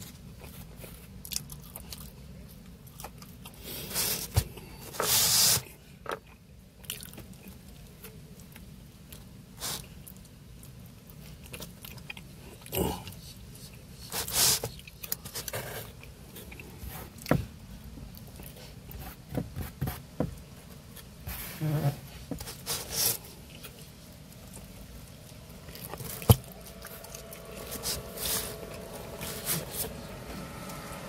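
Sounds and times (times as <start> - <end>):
person biting and chewing: 1.1 - 2.2.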